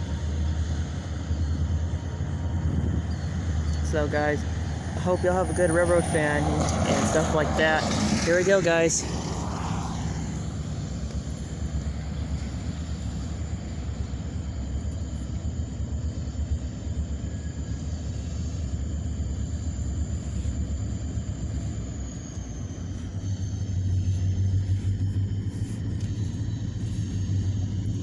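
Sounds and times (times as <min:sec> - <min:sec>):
locomotive engine rumble: 0:00.0 - 0:28.0.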